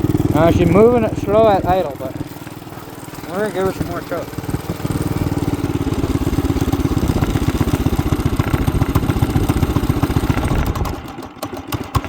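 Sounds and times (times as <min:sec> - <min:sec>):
small engine running rough: 0:00.0 - 0:12.0.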